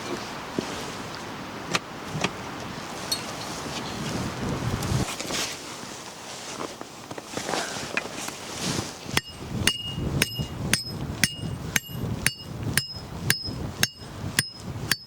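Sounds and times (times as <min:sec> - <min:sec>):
hammer striking metal stake: 0:09.2 - 0:15.0.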